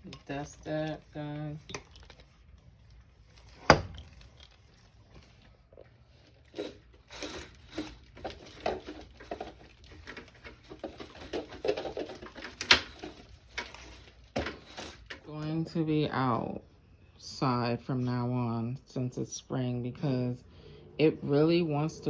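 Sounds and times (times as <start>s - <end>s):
rustling: 0.0s - 15.2s.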